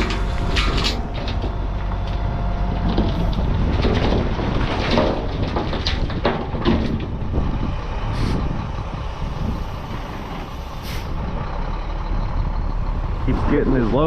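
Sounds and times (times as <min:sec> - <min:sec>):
diesel engine running: 0:00.0 - 0:14.0
short hisses: 0:10.8 - 0:11.1.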